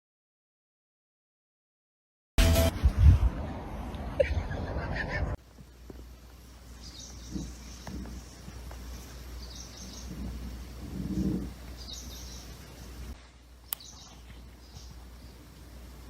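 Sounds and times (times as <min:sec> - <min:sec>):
steady low hum: 0:02.7 - 0:16.0
birds chirping: 0:05.6 - 0:16.0
sharp click: 0:13.7 - 0:13.9.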